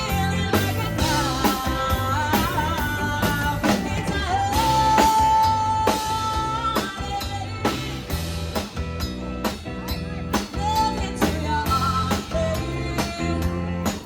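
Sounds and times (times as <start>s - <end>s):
lead vocal singing: 0.0s - 8.2s
drums beating: 0.0s - 14.0s
rock band playing: 0.0s - 14.0s.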